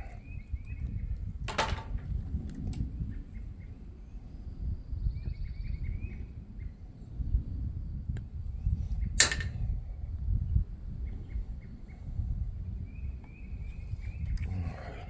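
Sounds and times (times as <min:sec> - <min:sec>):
wind buffeting microphone: 0:00.0 - 0:15.0
wire cutters snipping: 0:09.2 - 0:09.5.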